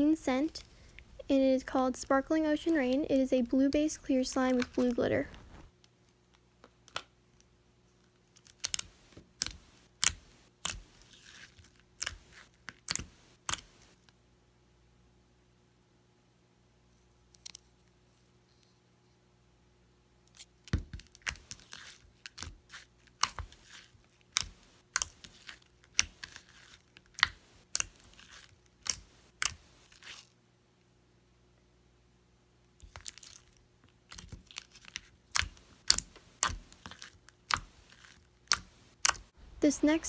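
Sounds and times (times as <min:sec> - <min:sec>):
slime squishing with wet pops: 0:08.4 - 0:14.0, 0:20.7 - 0:30.3, 0:32.8 - 0:39.4.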